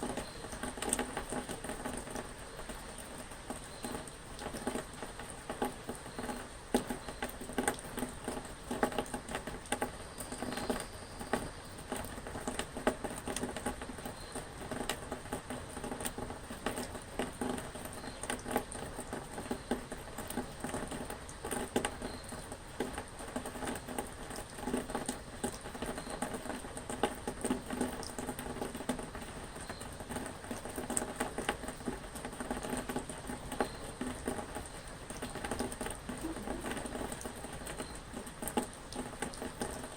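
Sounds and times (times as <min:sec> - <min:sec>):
rain pattering on ringing surface: 0:00.0 - 0:39.9.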